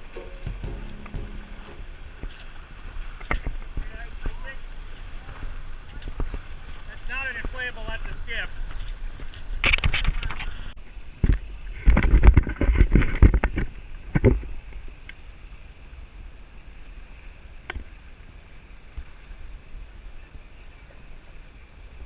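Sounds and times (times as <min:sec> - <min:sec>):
water rushing: 0:00.0 - 0:05.8.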